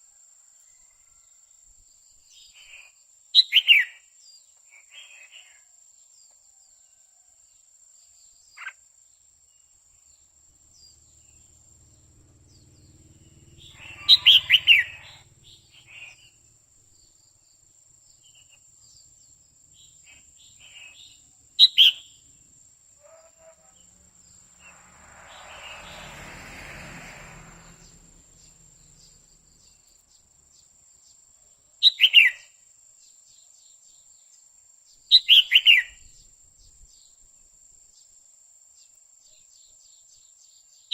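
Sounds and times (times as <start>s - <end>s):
bird chirping: 1.9s - 5.6s, 8.0s - 38.2s
soft rushing noise: 23.7s - 30.1s.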